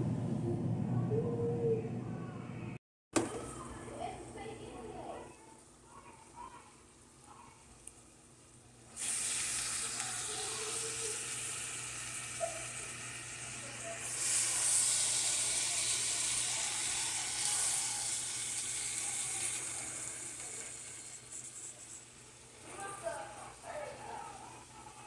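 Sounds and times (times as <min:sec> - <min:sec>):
steak sizzling in a hot pan: 0:08.9 - 0:22.6.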